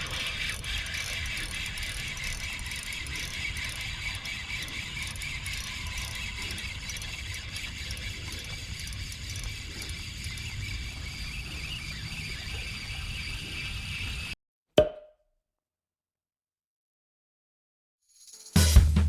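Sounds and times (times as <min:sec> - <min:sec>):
fishing reel clicking: 0:00.0 - 0:14.0.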